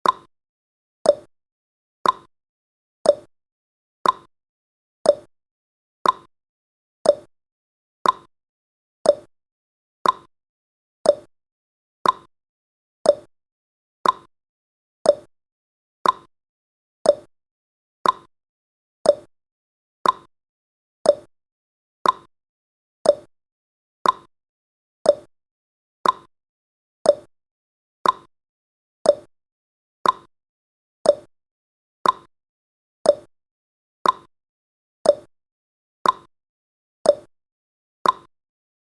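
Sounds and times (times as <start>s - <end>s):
clock ticking: 2.0s - 2.3s, 4.0s - 4.3s, 6.0s - 6.3s, 8.0s - 8.3s, 10.0s - 10.3s, 12.0s - 12.3s, 14.0s - 14.3s, 15.1s - 15.3s, 16.0s - 16.3s, 18.0s - 18.3s, 20.0s - 20.3s, 21.1s - 21.3s, 22.0s - 22.3s, 24.0s - 24.3s, 26.0s - 26.3s, 28.0s - 28.3s, 29.1s - 29.3s, 30.0s - 30.3s, 31.1s - 31.3s, 32.0s - 32.3s, 33.1s - 33.3s, 34.0s - 34.3s, 35.1s - 35.3s, 36.0s - 36.3s, 38.0s - 38.3s.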